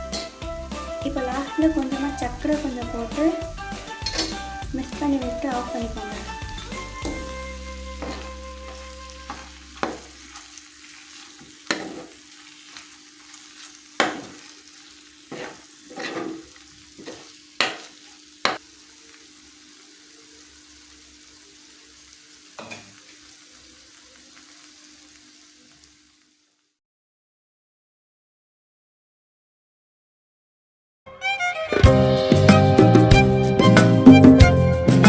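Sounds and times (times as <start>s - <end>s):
chicken sizzling in a pan: 0.0s - 26.8s
spoon knocking and scraping pan: 0.1s - 0.4s, 3.6s - 4.6s, 5.2s - 10.5s, 11.2s - 12.8s, 13.5s - 14.5s, 15.3s - 18.6s, 22.6s - 23.0s.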